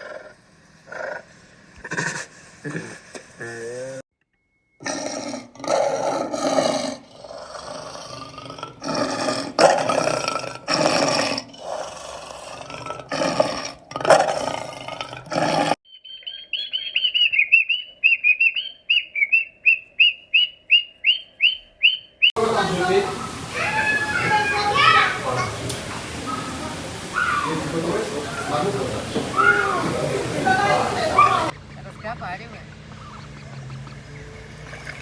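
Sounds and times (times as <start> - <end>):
animal roaring: 4.8 - 15.8
bird chirping: 15.9 - 35.0.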